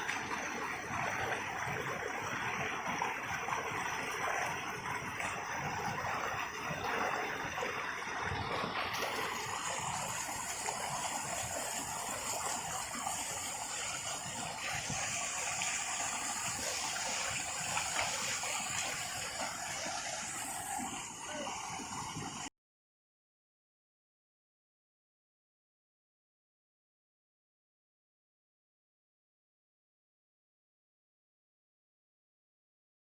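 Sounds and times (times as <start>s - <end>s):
waterfall rushing: 9.0s - 22.5s.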